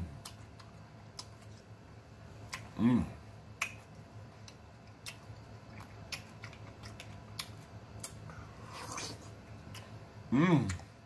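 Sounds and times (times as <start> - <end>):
faint low hum: 0.0 - 11.0
wet chewing mouth clicks: 0.2 - 1.7, 2.4 - 2.8, 3.6 - 10.0.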